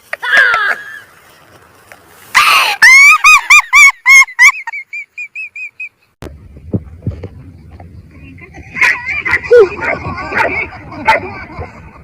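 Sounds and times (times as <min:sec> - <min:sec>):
faint low rumble: 0:06.2 - 0:12.0.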